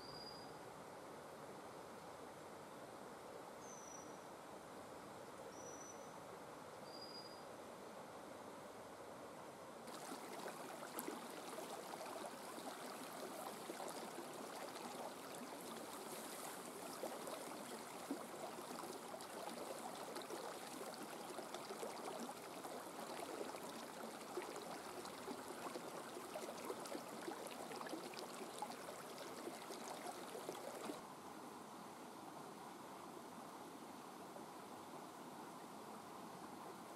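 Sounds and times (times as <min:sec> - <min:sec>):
steady rain patter: 0:09.9 - 0:31.0.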